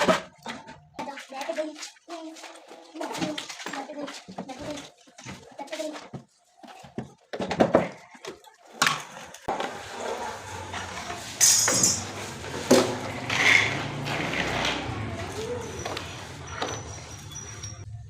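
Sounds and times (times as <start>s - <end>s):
hard objects knocking and clattering: 3.0s - 10.0s, 10.7s - 15.2s.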